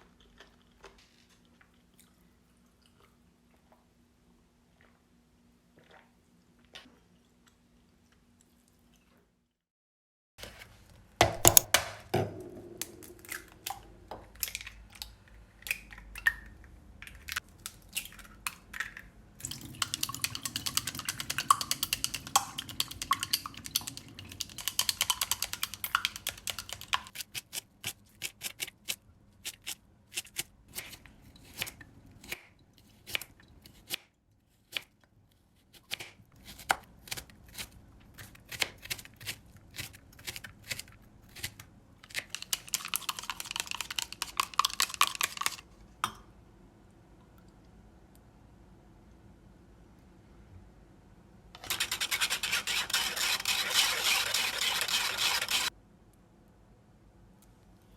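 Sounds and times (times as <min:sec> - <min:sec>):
utensils and dishes clicking: 0:19.8 - 0:27.1, 0:42.2 - 0:45.6, 0:51.6 - 0:55.7.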